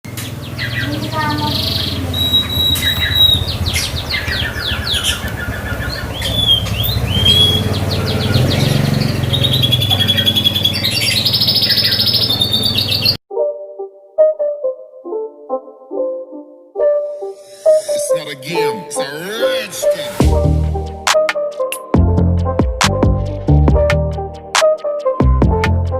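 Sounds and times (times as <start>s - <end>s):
canary singing trills: 0.1s - 13.2s.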